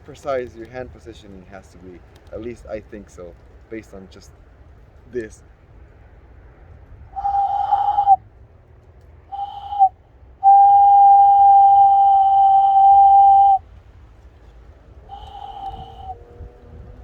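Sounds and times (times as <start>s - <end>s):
cupped-hand bird call whistle: 7.2s - 8.2s, 9.3s - 13.6s, 15.1s - 16.2s.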